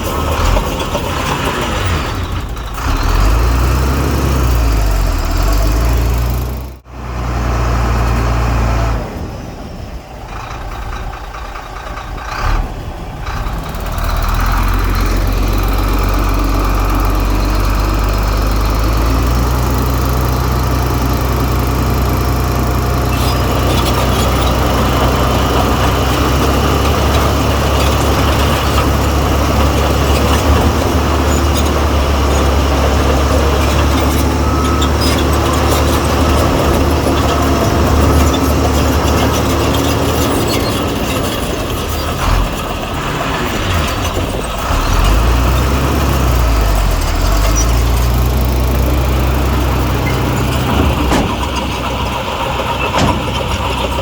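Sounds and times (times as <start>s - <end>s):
diesel earthmoving machinery running: 0.0s - 54.0s
clattering knocks: 48.9s - 54.0s.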